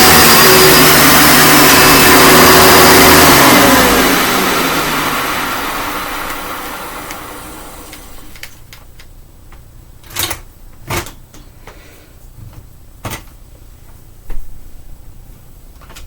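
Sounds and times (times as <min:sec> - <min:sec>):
vacuum cleaner motor winding down: 0:00.0 - 0:08.5.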